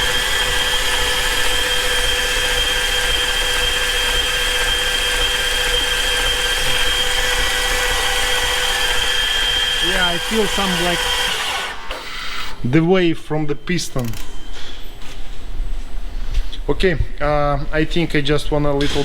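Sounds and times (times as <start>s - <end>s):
starter motor cranking engine: 0.0s - 12.6s.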